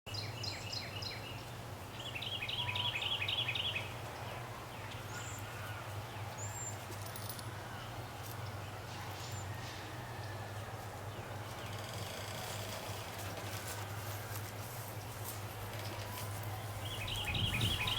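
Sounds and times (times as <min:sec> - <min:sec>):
birds chirping: 0:00.1 - 0:17.9.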